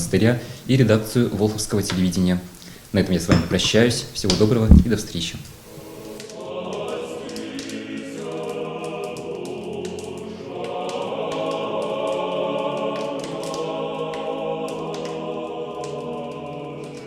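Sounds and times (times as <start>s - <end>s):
choir singing sustained chords: 5.7s - 17.0s.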